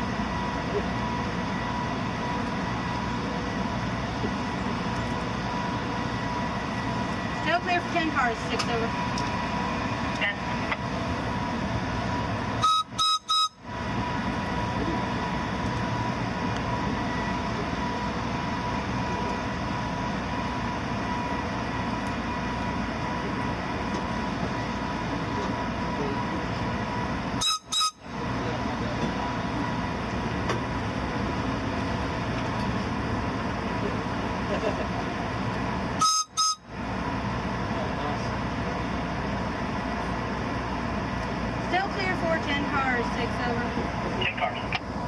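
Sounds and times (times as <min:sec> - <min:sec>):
train rumbling slowly: 0:00.0 - 0:45.0
short sharp beeps: 0:12.6 - 0:13.6.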